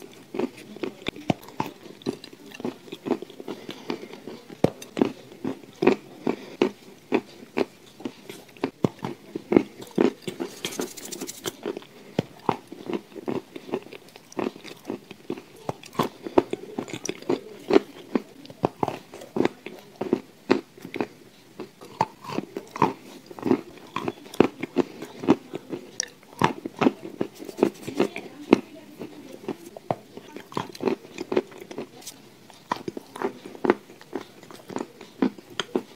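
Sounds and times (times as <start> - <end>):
person crunching dry food: 0.0 - 35.9
soft chewing: 0.0 - 35.9.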